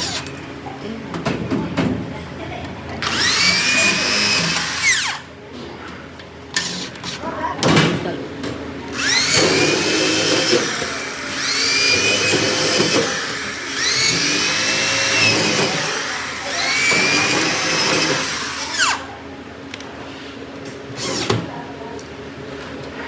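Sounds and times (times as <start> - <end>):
power tool motor whine: 3.0 - 5.3, 8.9 - 19.1.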